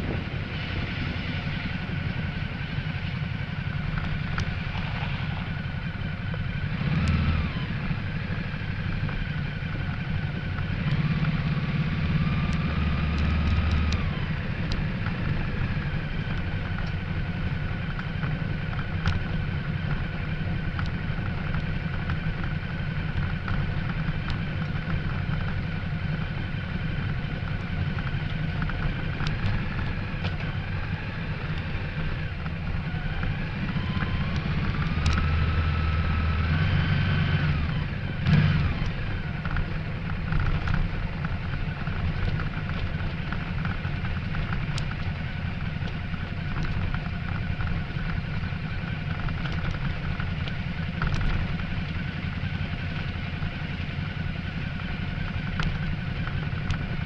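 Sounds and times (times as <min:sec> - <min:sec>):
wind noise: 0:00.0 - 0:03.1
motorcycle engine running: 0:00.0 - 0:57.0
road noise: 0:00.0 - 0:57.0.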